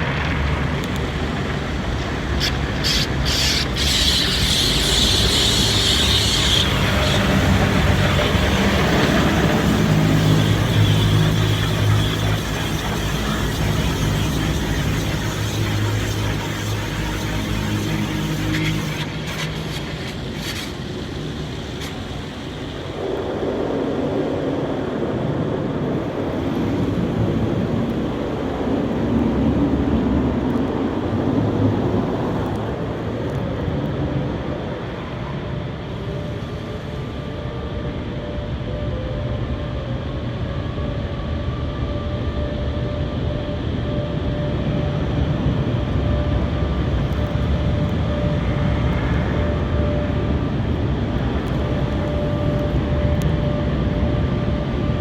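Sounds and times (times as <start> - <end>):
water rushing and spraying: 0.0 - 23.6
mechanical hum: 0.0 - 55.0.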